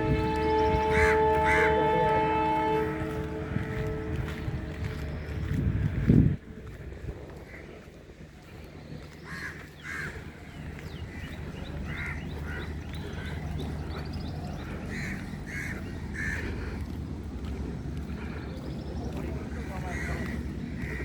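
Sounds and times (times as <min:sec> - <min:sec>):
low steady rumble: 0:00.0 - 0:21.0
crows cawing: 0:09.2 - 0:10.2, 0:14.9 - 0:16.8, 0:19.6 - 0:21.0.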